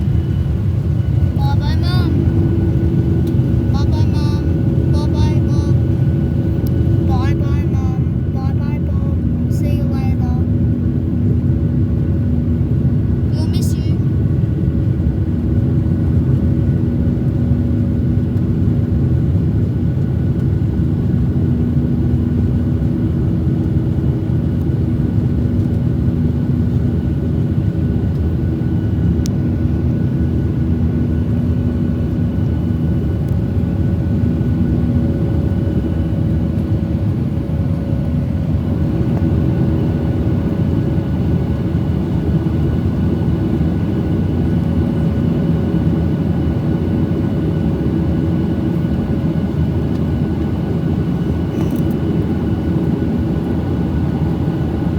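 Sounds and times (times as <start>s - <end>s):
steady hums: 0.0s - 14.2s
airplane cabin engine rumble: 0.0s - 54.9s.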